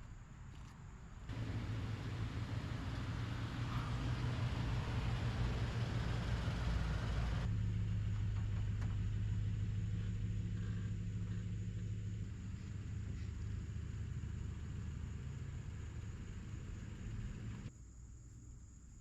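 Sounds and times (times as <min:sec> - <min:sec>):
hiss: 0:01.3 - 0:07.5
vehicle engine idling: 0:01.3 - 0:17.7.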